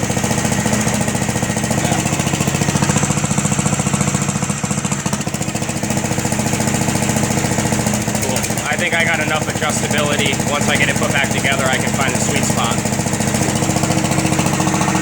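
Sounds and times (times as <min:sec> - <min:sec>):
gasoline engine running steadily: 0:00.0 - 0:15.0.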